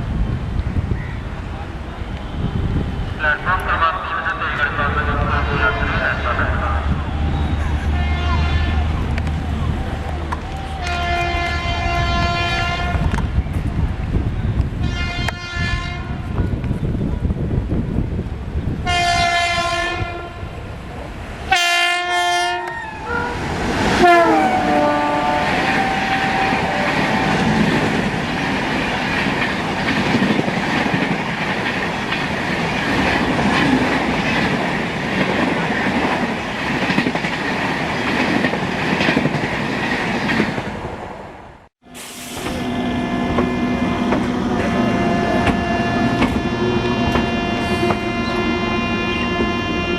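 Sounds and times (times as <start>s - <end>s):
train wheels rumbling: 0.0s - 49.9s
locomotive horn blasts: 5.3s - 9.1s, 10.7s - 13.2s, 14.8s - 16.3s, 18.8s - 20.5s, 21.5s - 23.4s, 24.0s - 27.4s, 41.8s - 49.9s
clickety-clack over rail joints: 27.0s - 40.7s, 43.3s - 46.5s.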